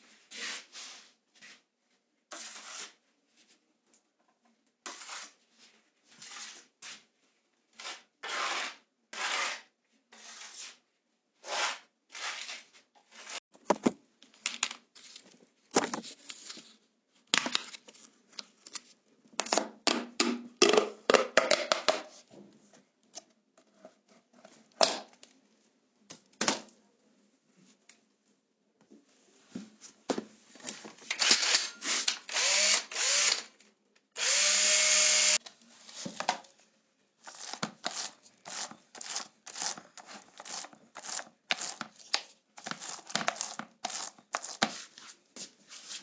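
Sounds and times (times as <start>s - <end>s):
scraping and tearing on a wall: 7.7s - 10.8s, 11.4s - 13.4s, 37.2s - 45.2s.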